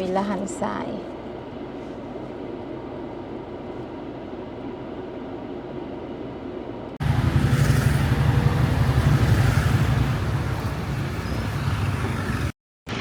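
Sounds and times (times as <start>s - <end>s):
vehicle engine and road noise: 5.6s - 13.0s.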